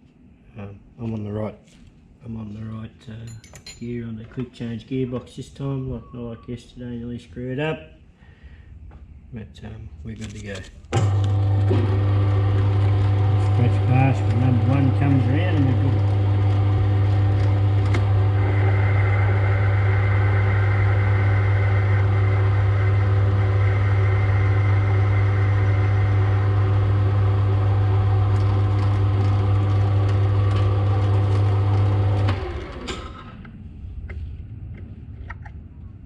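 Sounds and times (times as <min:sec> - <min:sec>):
lathe spinning down: 0:11.0 - 0:33.5
metal lathe humming with gear whine: 0:11.1 - 0:32.8.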